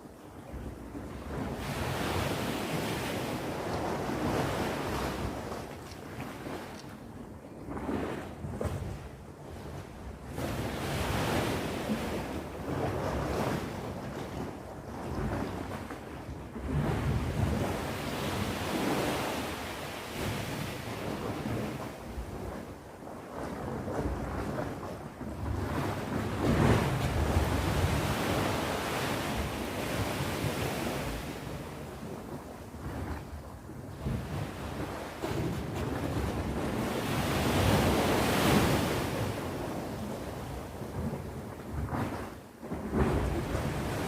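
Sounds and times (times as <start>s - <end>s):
sea waves breaking on shore: 0.0s - 44.0s
wind buffeting microphone: 0.5s - 44.0s
surf washing: 25.5s - 32.8s, 34.0s - 42.2s.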